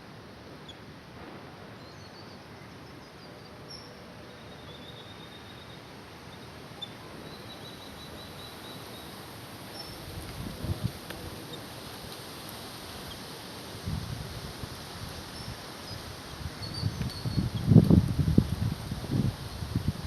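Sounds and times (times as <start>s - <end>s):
outdoor background noise: 0.0s - 20.0s
faint bird chirps: 1.8s - 10.0s.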